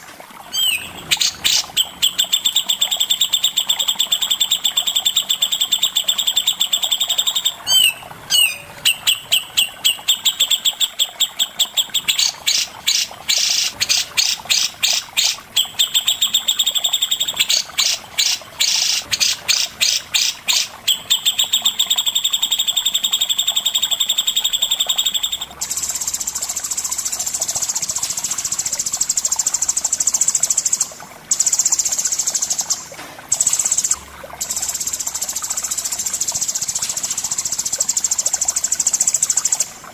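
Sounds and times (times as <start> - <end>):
songbird high trill: 0.5 - 10.7.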